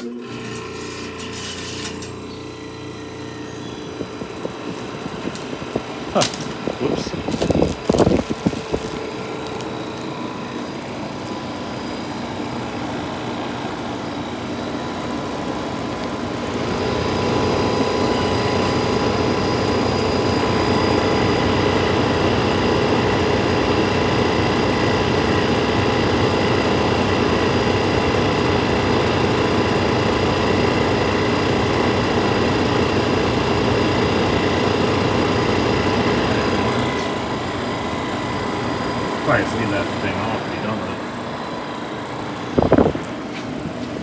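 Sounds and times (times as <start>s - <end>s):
air rushing from blower: 0.0s - 24.0s, 33.0s - 44.0s
air conditioner humming: 0.0s - 44.0s.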